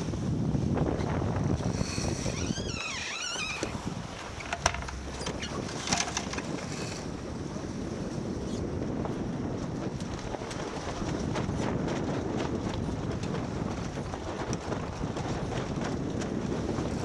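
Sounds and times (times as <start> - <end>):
water noise: 0.0 - 8.8
wind on microphone: 0.0 - 17.0.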